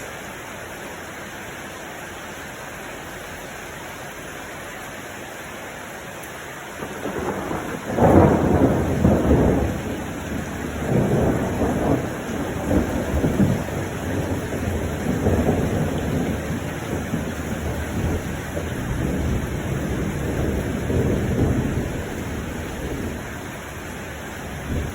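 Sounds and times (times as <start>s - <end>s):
steady rain: 0.0s - 24.9s
thunder rumbling: 6.8s - 24.9s.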